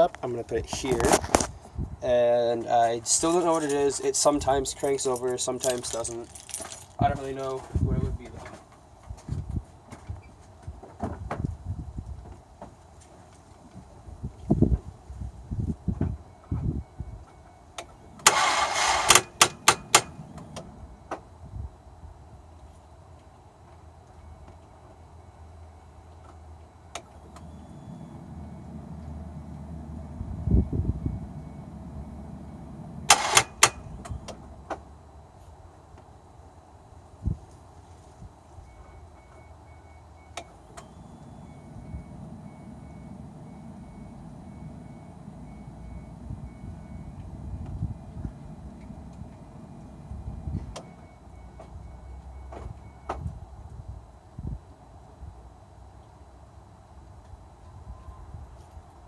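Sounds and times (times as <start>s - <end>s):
dashboard warning chime beeping: 16.2s - 21.0s, 26.7s - 34.7s, 38.6s - 53.3s
sharp starter clicks: 18.2s - 20.7s, 33.0s - 34.4s
starter motor whir: 18.2s - 20.8s, 27.1s - 34.6s
sharp clicks: 33.1s - 34.4s.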